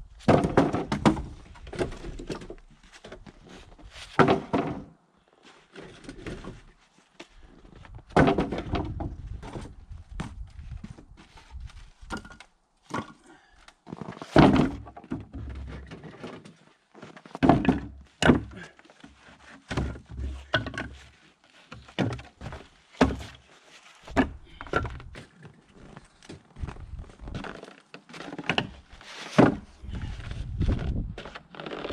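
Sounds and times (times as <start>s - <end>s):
firewood thunking onto a pile: 0.3s - 3.2s, 4.0s - 4.9s, 8.1s - 13.2s, 13.9s - 16.5s, 17.2s - 18.7s, 19.6s - 21.0s, 21.7s - 23.4s, 24.0s - 25.2s, 28.2s - 29.7s.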